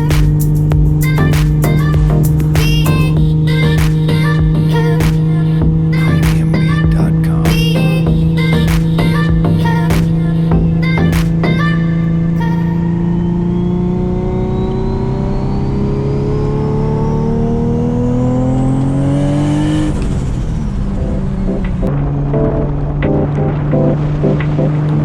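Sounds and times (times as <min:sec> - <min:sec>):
turbo whine: 0:00.0 - 0:17.5
car engine revving: 0:00.0 - 0:25.0
background music: 0:21.0 - 0:24.9.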